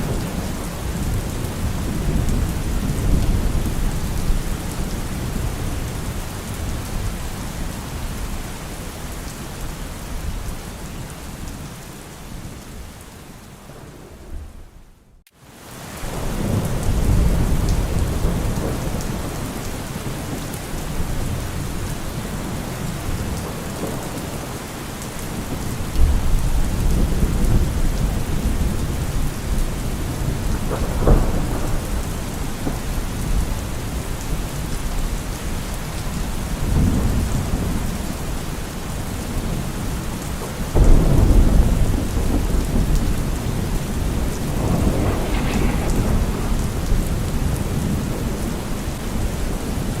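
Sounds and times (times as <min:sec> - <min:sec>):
thunder rumbling: 0:00.0 - 0:08.6, 0:16.1 - 0:35.1, 0:40.6 - 0:50.0
steady rain falling: 0:00.0 - 0:50.0.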